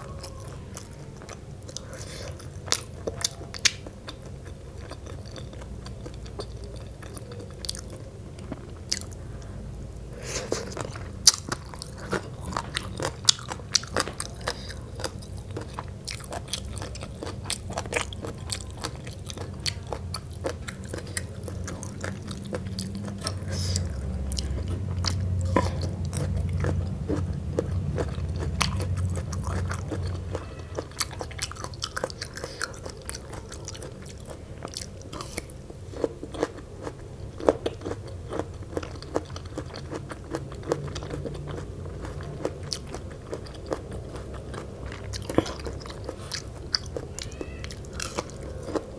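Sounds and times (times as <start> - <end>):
chewing and crunching food: 0.0 - 48.9.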